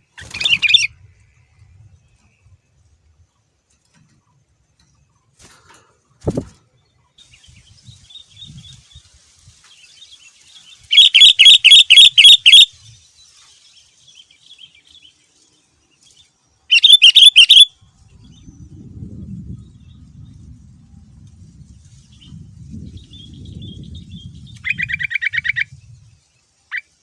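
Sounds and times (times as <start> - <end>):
bulbul chirping song: 0.0 - 0.9, 10.0 - 13.0, 16.6 - 18.5, 23.0 - 26.0
faint bird calls: 10.8 - 12.7.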